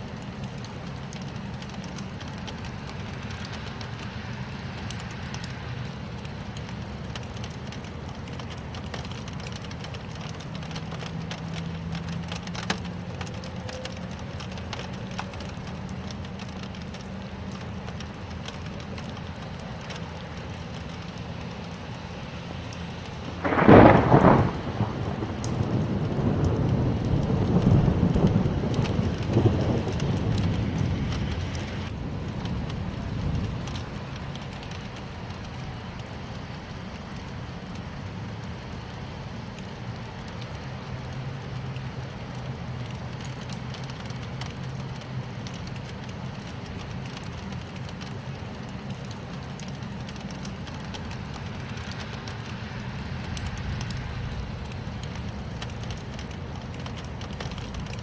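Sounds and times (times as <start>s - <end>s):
rain falling: 0.0s - 58.0s
thunder rumble: 23.2s - 36.1s, 50.1s - 58.0s.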